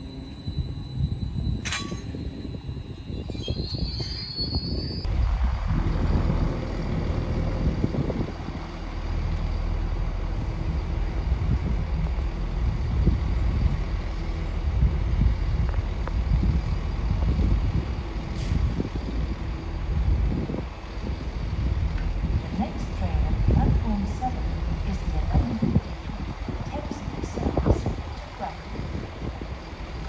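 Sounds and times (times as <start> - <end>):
train wheel squeal: 0.0 - 5.1
train rumble: 0.0 - 30.0.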